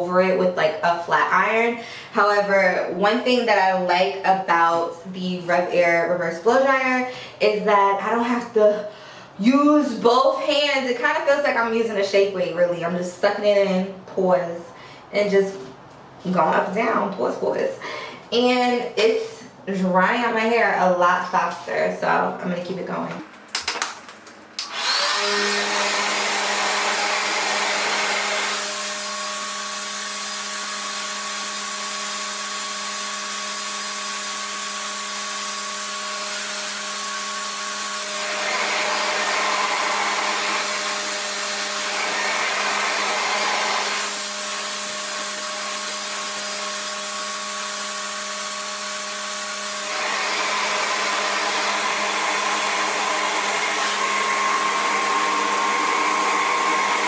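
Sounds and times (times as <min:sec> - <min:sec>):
hair dryer running: 0:23.2 - 0:57.0.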